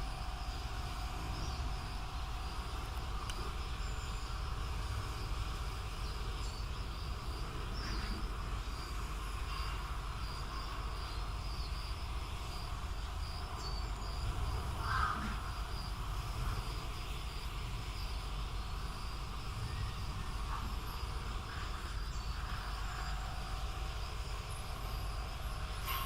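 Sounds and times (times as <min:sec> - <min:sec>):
insect chirping: 0:00.0 - 0:26.0
low background rumble: 0:00.0 - 0:26.0.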